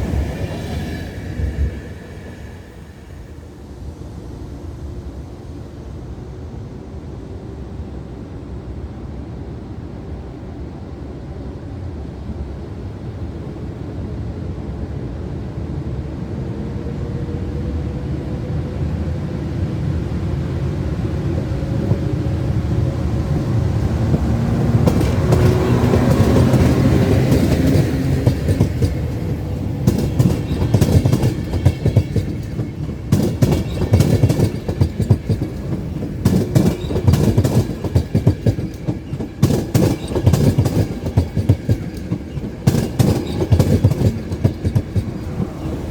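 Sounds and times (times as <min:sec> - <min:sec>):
electric locomotive passing: 0:00.0 - 0:45.9
wheels clacking over rail joints: 0:21.7 - 0:45.9.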